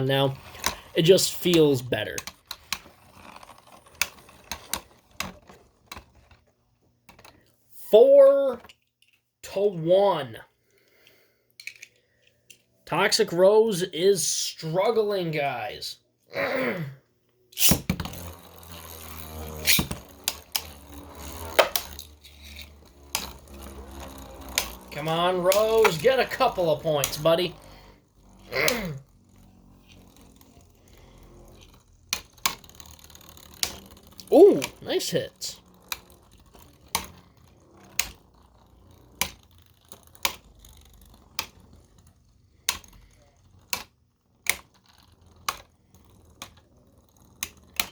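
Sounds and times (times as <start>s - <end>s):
spinning tops whirring: 0.0s - 7.4s, 17.6s - 47.9s
spinning tops clattering: 17.6s - 43.8s.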